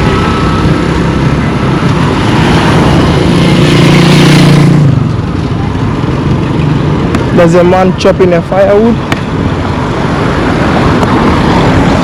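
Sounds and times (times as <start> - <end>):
vehicle passing by: 0.0 - 5.4.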